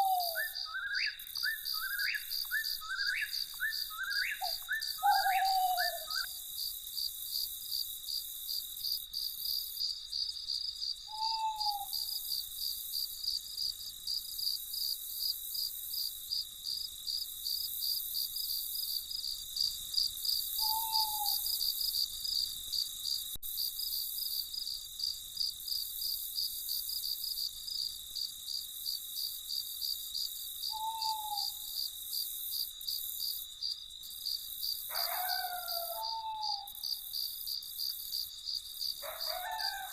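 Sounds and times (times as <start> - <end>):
owl hoot: 0.0 - 6.4, 11.1 - 12.2, 20.6 - 21.6, 30.7 - 31.7, 34.9 - 36.8, 39.0 - 39.9
crickets chirping: 0.0 - 39.9.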